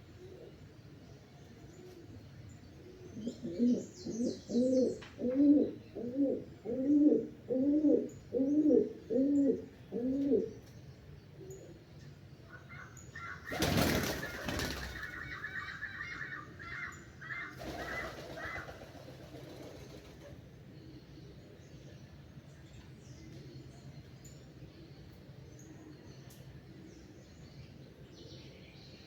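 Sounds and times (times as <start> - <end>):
dove cooing: 2.8 - 10.6, 12.6 - 20.3.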